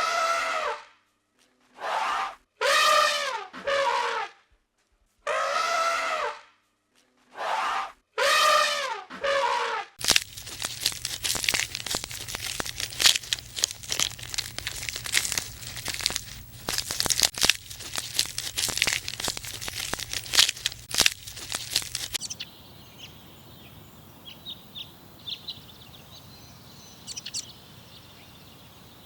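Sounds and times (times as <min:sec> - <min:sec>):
dense crackling and crunching: 0:10.0 - 0:22.3.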